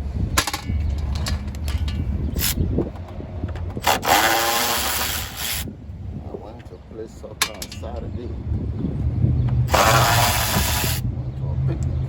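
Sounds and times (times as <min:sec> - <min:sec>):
rasping burst: 0:03.8 - 0:05.7, 0:09.7 - 0:11.0.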